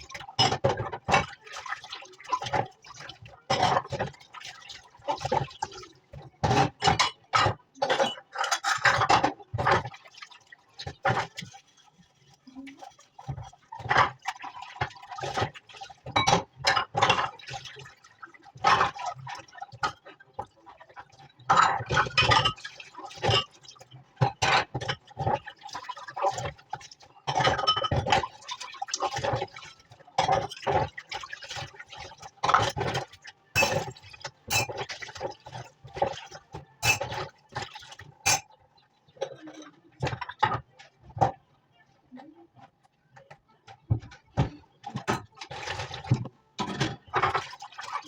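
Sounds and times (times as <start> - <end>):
dishes and glasses clinking: 6.4 - 9.9, 16.0 - 17.3, 21.5 - 23.6, 27.3 - 28.2, 33.6 - 35.0, 36.0 - 37.6, 38.2 - 38.6, 44.0 - 47.5
running splashing water: 28.0 - 38.5, 44.8 - 48.0.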